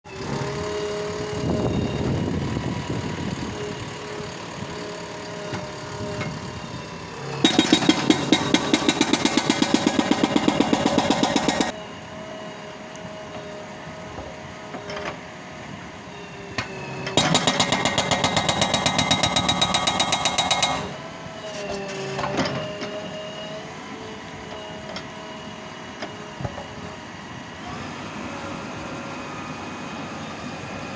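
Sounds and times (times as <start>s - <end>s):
diesel engine running: 0.1s - 21.4s
hydraulic breaker hammering: 7.4s - 11.8s, 17.2s - 21.0s.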